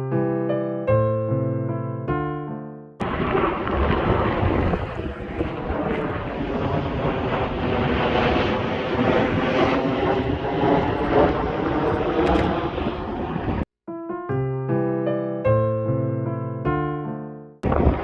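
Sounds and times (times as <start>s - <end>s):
aircraft engine rumble: 3.0s - 13.7s.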